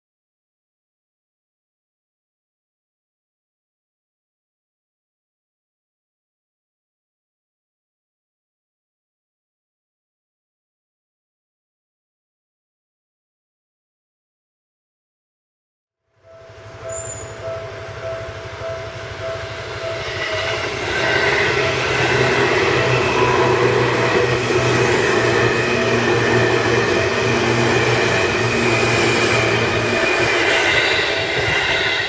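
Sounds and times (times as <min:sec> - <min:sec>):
electric train rumbling past: 0:16.1 - 0:32.0
crossing warning bell dinging: 0:16.2 - 0:32.0.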